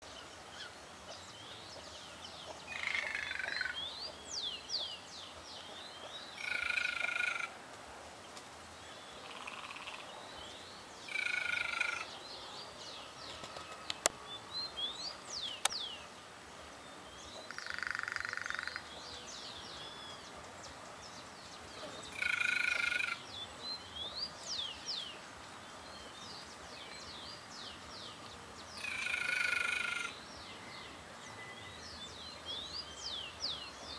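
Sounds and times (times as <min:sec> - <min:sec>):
small birds chirping: 0:00.0 - 0:07.5, 0:08.2 - 0:33.9
jay calling: 0:06.4 - 0:07.6, 0:11.1 - 0:12.2, 0:21.9 - 0:23.3, 0:28.8 - 0:30.2.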